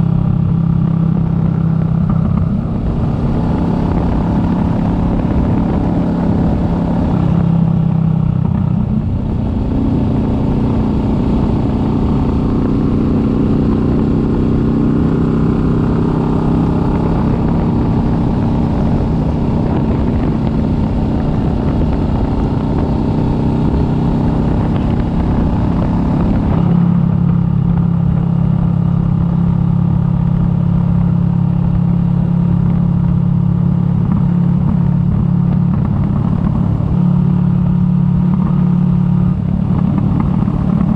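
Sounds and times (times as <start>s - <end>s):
motorcycle engine running: 0.0s - 40.9s
road and wind noise: 0.0s - 40.9s.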